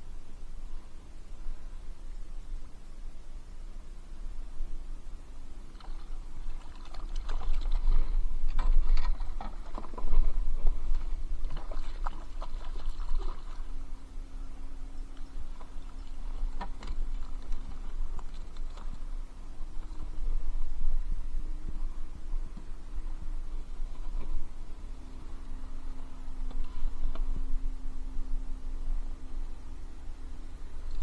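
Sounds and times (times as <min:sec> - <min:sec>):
water splashing against kayak: 0:05.6 - 0:27.7.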